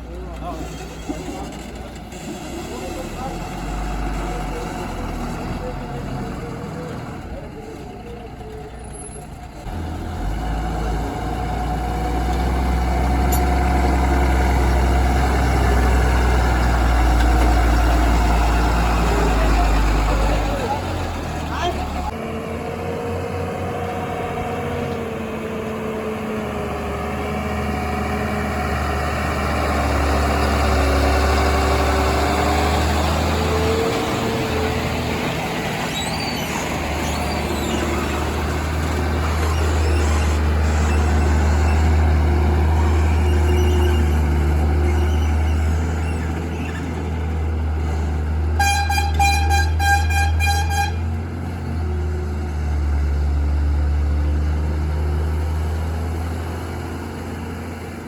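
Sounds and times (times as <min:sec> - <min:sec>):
heavy diesel engine running: 0:00.0 - 0:58.0
vehicle horn short toots: 0:48.6 - 0:51.1.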